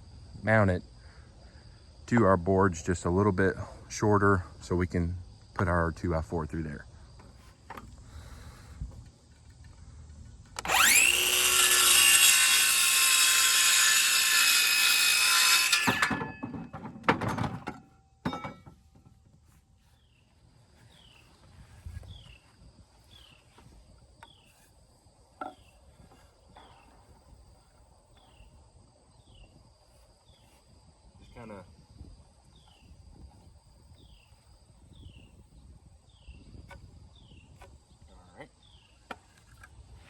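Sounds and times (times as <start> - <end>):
faint insect chirping: 0.0 - 10.8, 17.8 - 40.0
power saw cutting wood: 10.6 - 16.4
wood knocks: 15.8 - 19.3.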